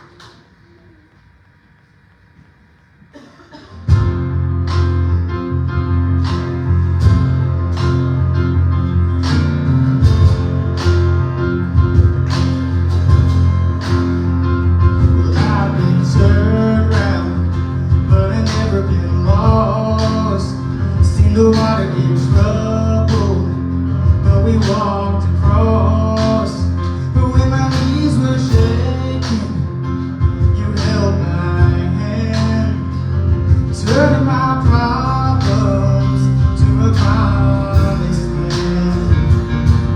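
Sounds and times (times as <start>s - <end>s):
steady beat: 3.1s - 20.4s, 33.2s - 39.9s
acoustic guitar: 3.1s - 39.9s.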